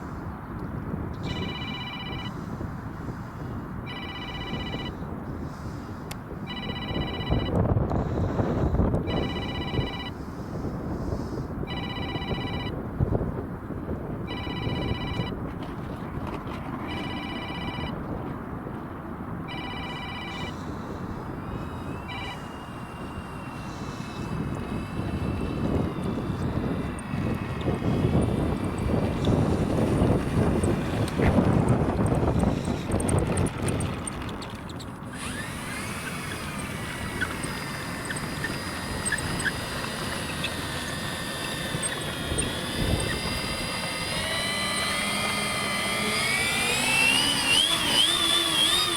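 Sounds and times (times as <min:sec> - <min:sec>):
propeller aircraft engine whine: 0:00.0 - 0:48.9
wind buffeting microphone: 0:00.0 - 0:48.9
electronic alarm beeping: 0:01.2 - 0:02.4, 0:03.9 - 0:05.0, 0:06.5 - 0:07.6, 0:09.0 - 0:10.2, 0:11.7 - 0:12.8, 0:14.3 - 0:15.4, 0:16.9 - 0:18.0, 0:19.5 - 0:20.6, 0:22.0 - 0:23.6.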